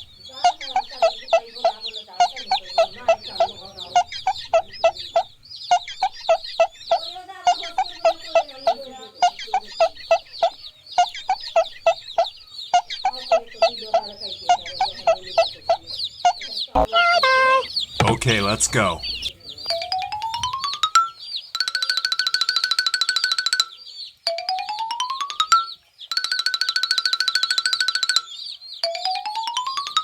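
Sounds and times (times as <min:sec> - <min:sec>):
chickens clucking: 0:00.0 - 0:21.5
high falling chirps: 0:16.8 - 0:19.3.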